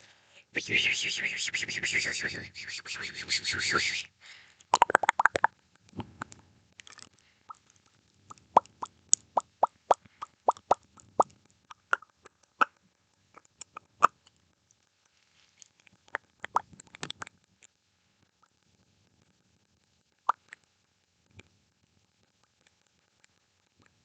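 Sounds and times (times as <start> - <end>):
wet mouth clicks and pops: 4.6 - 7.7, 8.3 - 12.8, 13.4 - 14.2, 15.9 - 17.4, 20.3 - 20.6.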